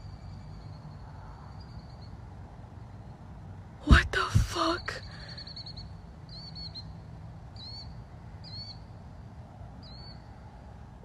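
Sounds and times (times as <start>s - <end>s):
low steady background rumble: 0.0s - 11.0s
bird chirping: 5.0s - 9.0s, 9.8s - 10.4s.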